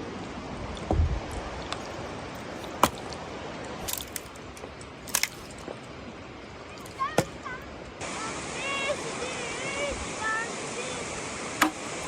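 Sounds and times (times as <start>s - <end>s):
rain hiss: 0.0s - 12.0s.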